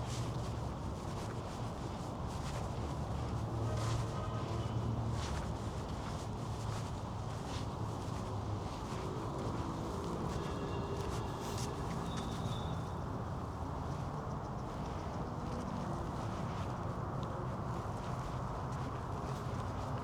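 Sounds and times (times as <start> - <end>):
distant city traffic hum: 0.0 - 20.0
footsteps: 2.8 - 13.6
faint bird chirps: 10.4 - 13.0.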